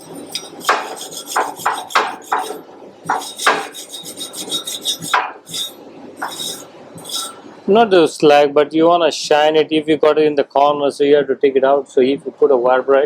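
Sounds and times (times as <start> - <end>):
wire brush scrubbing steel: 0.0 - 7.4.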